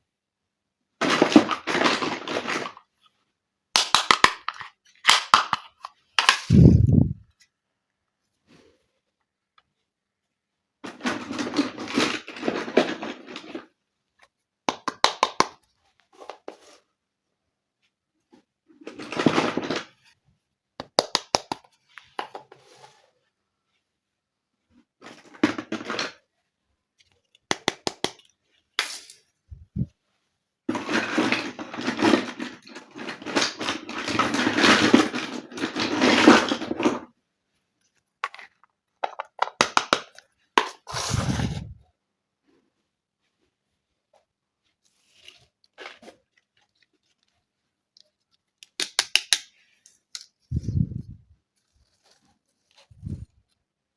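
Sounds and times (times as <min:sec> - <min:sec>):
plastic toy pieces clicking: 0:03.8 - 0:06.6, 0:38.2 - 0:40.8, 0:48.6 - 0:50.3.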